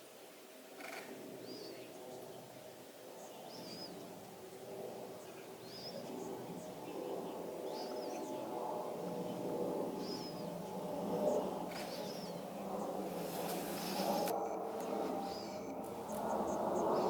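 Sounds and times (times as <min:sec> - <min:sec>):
bird chirping: 0:10.0 - 0:17.0.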